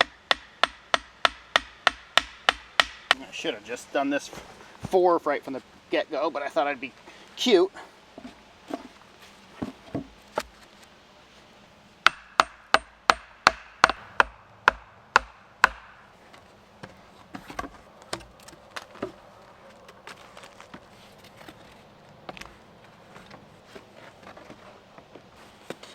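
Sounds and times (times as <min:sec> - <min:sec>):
wood being struck hard: 0:00.0 - 0:03.2, 0:12.0 - 0:16.1.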